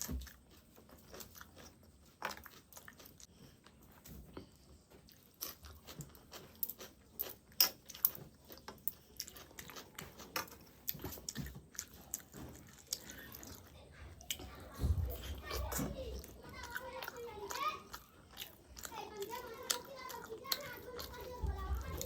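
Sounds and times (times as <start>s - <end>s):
wet crunchy chewing: 0.0s - 22.0s.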